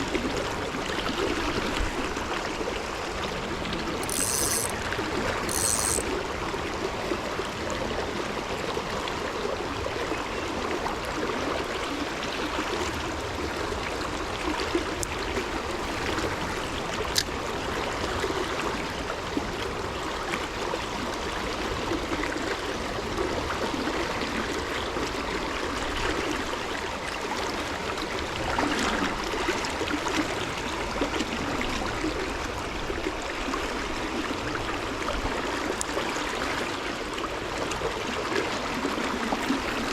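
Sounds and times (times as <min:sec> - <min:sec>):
stream water running: 0:00.0 - 0:39.9
sharp tick: 0:04.0 - 0:04.7, 0:05.5 - 0:06.0.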